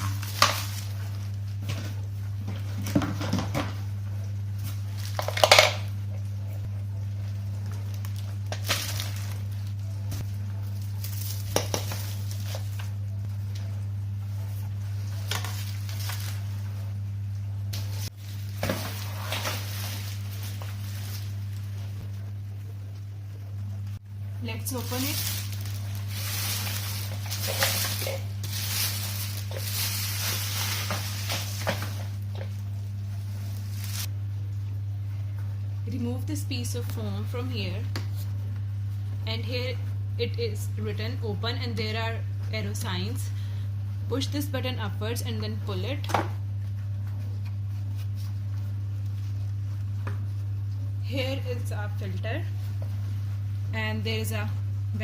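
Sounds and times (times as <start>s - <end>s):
plastic packaging rustling: 0.0s - 1.6s, 7.9s - 13.1s, 14.9s - 16.8s, 17.8s - 22.0s, 24.4s - 34.1s
steady low hum: 0.0s - 55.0s.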